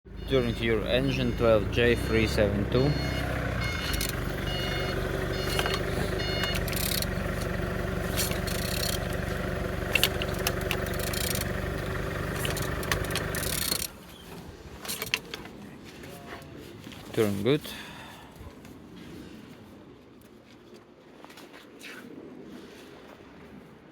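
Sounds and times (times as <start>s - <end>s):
car engine idling: 0.0s - 14.1s.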